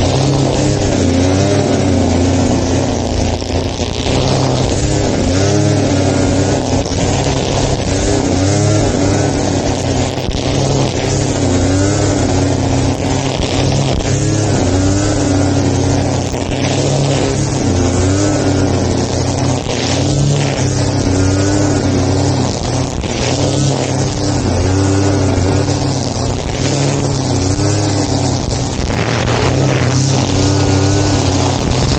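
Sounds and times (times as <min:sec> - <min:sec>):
lawn mower engine running: 0:00.0 - 0:31.9.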